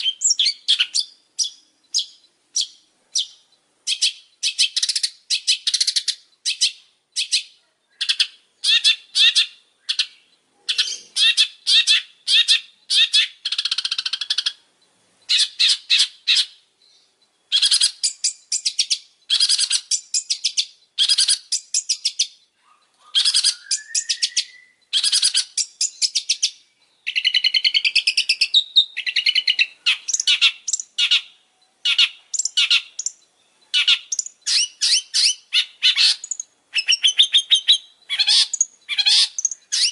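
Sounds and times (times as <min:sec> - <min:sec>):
bird harsh chattering song: 0:00.0 - 0:39.9
rising whistled bird note: 0:23.4 - 0:24.8.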